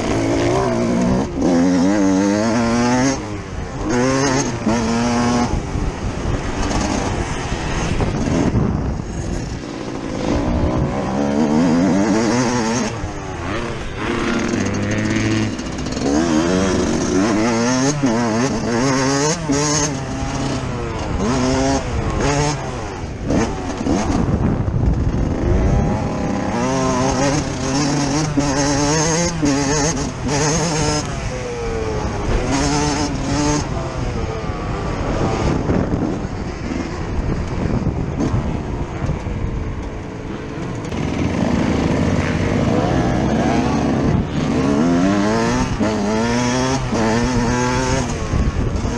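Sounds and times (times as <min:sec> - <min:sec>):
two-stroke motorbike engine revving: 0:00.0 - 0:48.9.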